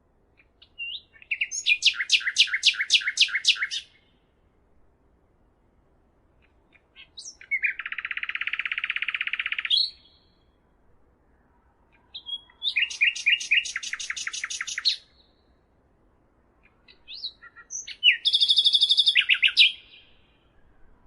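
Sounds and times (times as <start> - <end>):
songbird singing: 0.0 - 5.2, 6.2 - 21.0.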